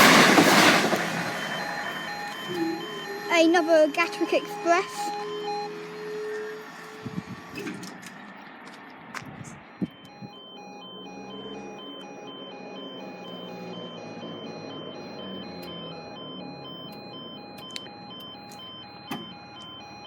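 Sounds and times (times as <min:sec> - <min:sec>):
electric train passing: 0:00.0 - 0:07.6, 0:10.1 - 0:18.1
level crossing alarm beeps: 0:00.0 - 0:07.6, 0:09.5 - 0:20.0.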